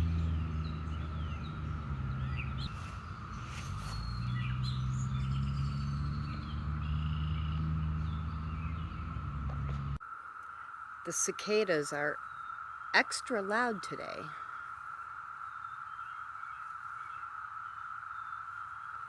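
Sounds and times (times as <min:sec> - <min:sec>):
airplane humming: 0:00.0 - 0:10.0, 0:13.0 - 0:14.3
birds chirping: 0:00.0 - 0:19.0
cicadas droning in chorus: 0:00.0 - 0:19.0.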